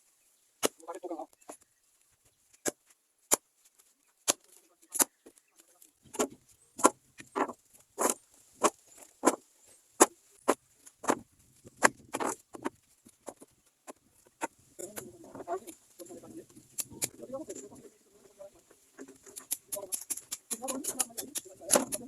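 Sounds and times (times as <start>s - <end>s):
firewood knocking: 6.1s - 9.4s.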